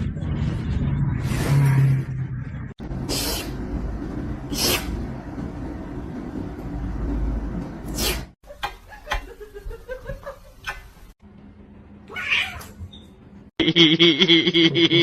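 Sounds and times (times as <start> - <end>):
cat yowling: 12.1 - 12.8
cats meowing: 12.1 - 12.8.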